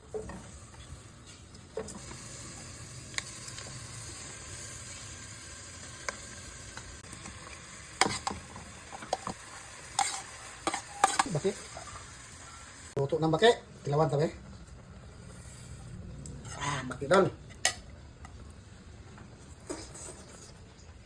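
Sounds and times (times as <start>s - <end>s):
food sizzling in a pan: 0.0s - 13.5s
utensil stirring and scraping: 8.0s - 11.9s.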